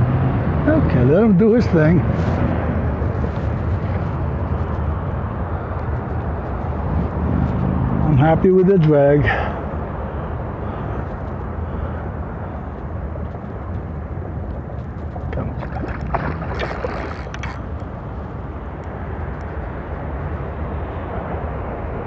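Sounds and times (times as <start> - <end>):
low rumble of open water: 0.0 - 8.7, 9.3 - 22.0
wind buffeting microphone: 9.7 - 22.0.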